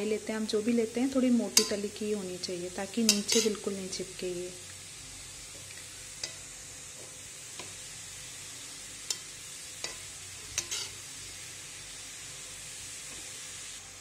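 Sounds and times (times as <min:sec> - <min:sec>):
carrots sizzling in hot ghee: 0:00.0 - 0:14.0
steel spoon scraping a pan: 0:01.4 - 0:01.9, 0:03.0 - 0:03.7, 0:06.1 - 0:07.8, 0:09.0 - 0:11.2.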